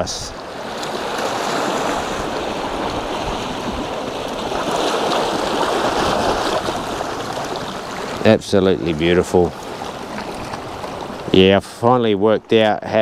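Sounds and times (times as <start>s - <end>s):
ocean surf: 0.0s - 13.0s
wind on microphone: 1.7s - 7.8s.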